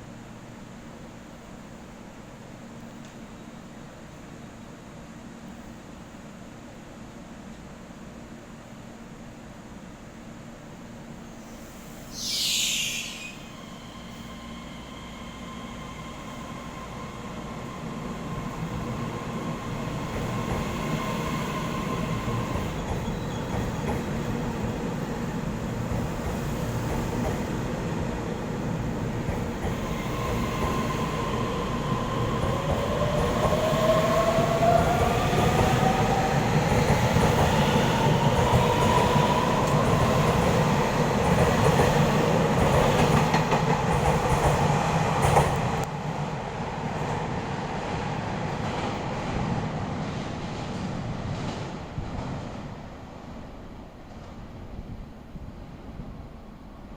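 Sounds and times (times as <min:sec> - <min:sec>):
train rumble: 0:11.2 - 0:56.9
falling hiss: 0:11.4 - 0:14.4.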